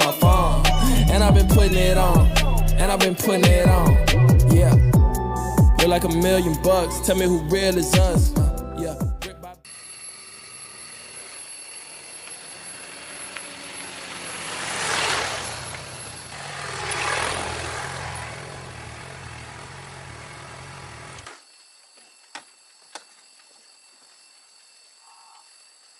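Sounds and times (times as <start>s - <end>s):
motorcycle engine running: 13.0s - 21.2s
whooshes: 14.3s - 19.4s.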